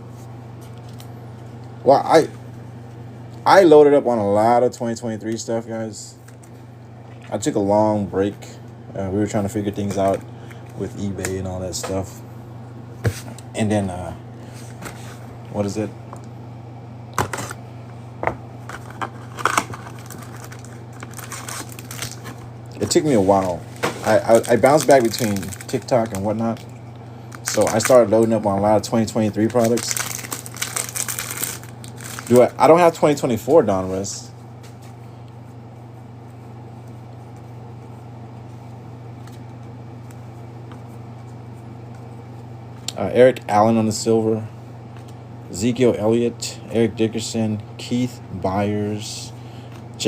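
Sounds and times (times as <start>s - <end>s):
steady low hum: 0.0s - 50.0s
trading cards clicking and rustling: 18.7s - 26.7s, 27.4s - 33.2s.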